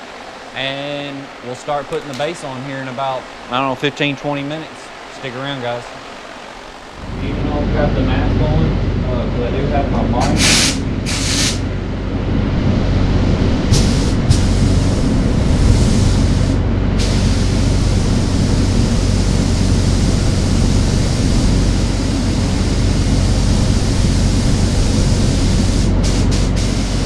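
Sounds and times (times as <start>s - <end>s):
air supply hum: 0.0s - 27.0s
spray gun hissing: 10.2s - 11.7s, 13.7s - 27.0s.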